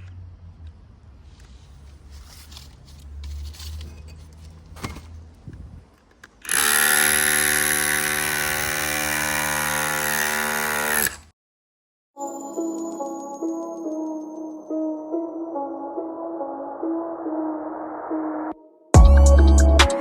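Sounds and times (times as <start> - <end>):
handheld power tool running: 6.4 - 11.3.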